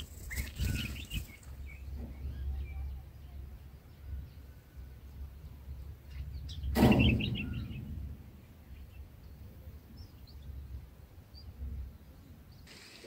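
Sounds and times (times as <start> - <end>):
high bird chirps: 0.0 - 3.1, 6.1 - 8.0
low outdoor rumble: 0.0 - 12.7.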